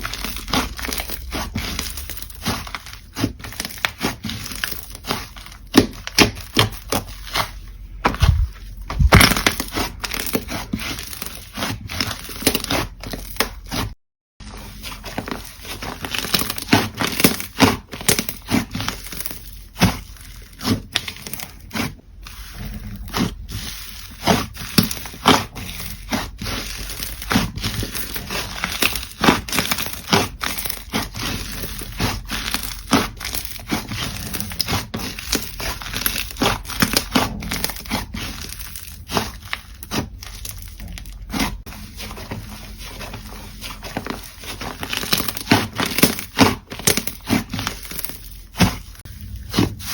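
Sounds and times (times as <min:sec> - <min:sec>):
slime popping and crackling: 0:00.0 - 0:13.8, 0:14.6 - 0:49.9.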